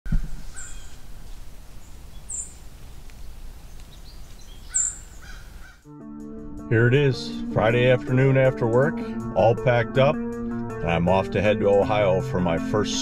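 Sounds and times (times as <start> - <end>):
high bird chirps: 0.2 - 1.1, 1.8 - 2.6, 3.7 - 5.9.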